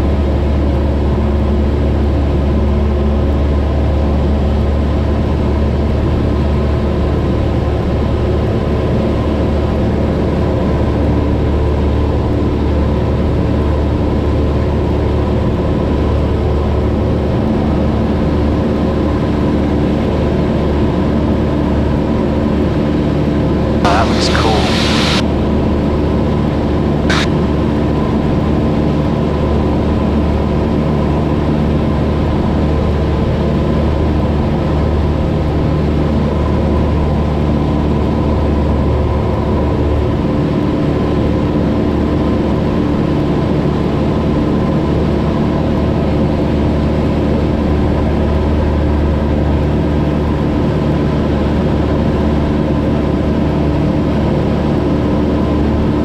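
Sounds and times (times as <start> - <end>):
airplane engine droning: 23.8 - 25.2.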